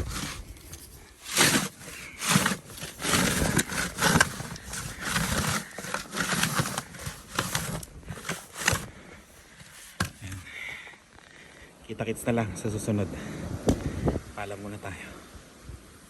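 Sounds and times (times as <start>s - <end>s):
snow shovel scraping snow: 0.0s - 10.4s.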